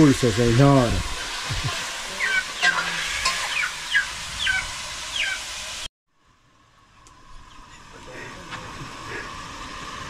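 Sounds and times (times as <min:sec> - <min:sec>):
chicken frying in a pot: 0:00.0 - 0:05.9.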